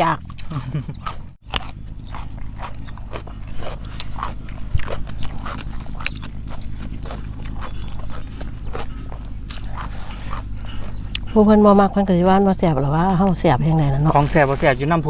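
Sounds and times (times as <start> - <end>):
chewing and lip-smacking: 0.0 - 11.7, 13.2 - 15.0
low hum: 0.0 - 15.0.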